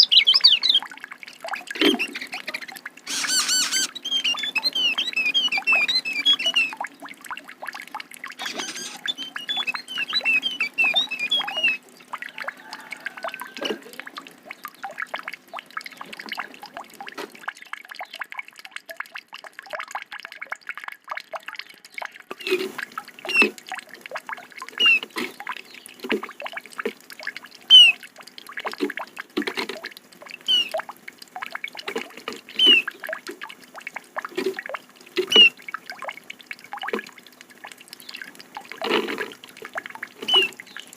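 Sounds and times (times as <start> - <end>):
songbirds chirping trills: 0.0 - 7.3, 8.4 - 16.5, 24.7 - 26.5, 27.7 - 28.0, 30.4 - 30.8, 32.5 - 33.0, 35.2 - 35.6, 40.2 - 40.9.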